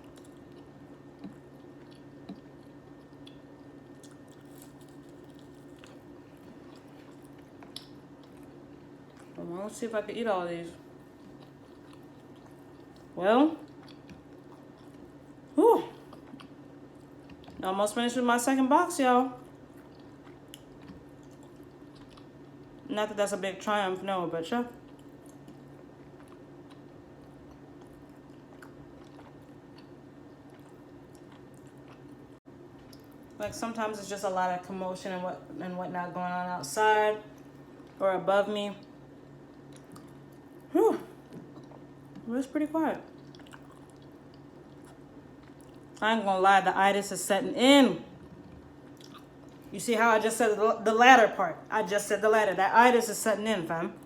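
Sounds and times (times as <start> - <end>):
faint chewing: 0.0 - 9.5, 10.8 - 17.8, 19.4 - 22.9, 24.7 - 33.4, 37.3 - 38.0, 38.8 - 42.3, 43.0 - 46.0, 48.1 - 49.7
steady low hum: 0.0 - 54.0.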